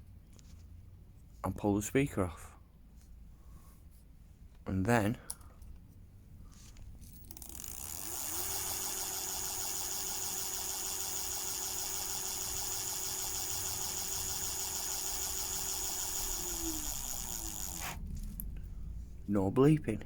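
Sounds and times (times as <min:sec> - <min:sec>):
electric bike motor whine: 0:07.4 - 0:18.1.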